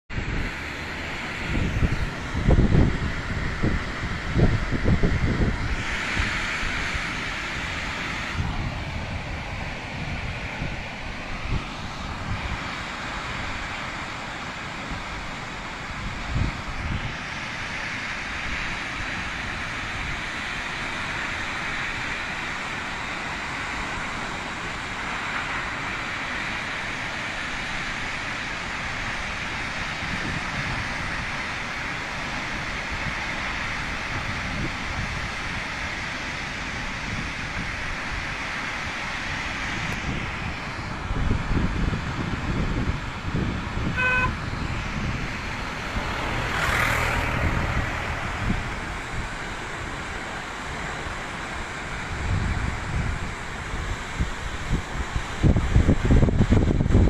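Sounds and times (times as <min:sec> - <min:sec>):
waterfall roaring: 0:00.1 - 0:57.0
wind thumps on microphone: 0:39.7 - 0:49.4, 0:52.0 - 0:57.0.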